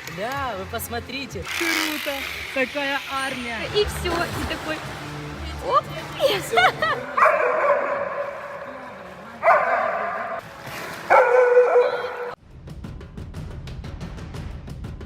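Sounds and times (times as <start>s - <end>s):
music with drum beats: 12.4s - 15.0s.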